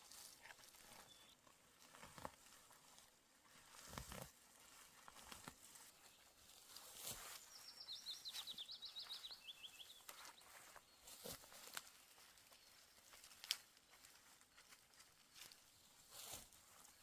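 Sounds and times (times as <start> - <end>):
songbird trill: 0.8 - 1.4, 5.9 - 14.8.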